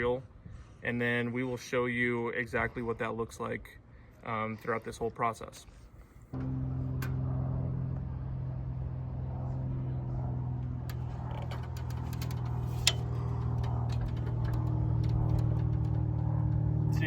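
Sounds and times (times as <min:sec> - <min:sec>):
motor humming: 0:10.6 - 0:17.0.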